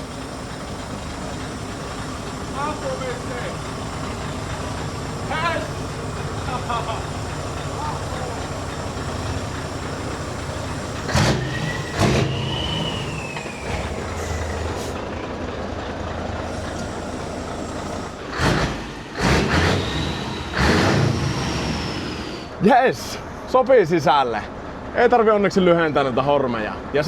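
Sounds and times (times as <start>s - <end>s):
compressed air hisses: 0.0s - 15.0s, 16.5s - 22.5s
diesel truck engine idling: 0.0s - 27.0s.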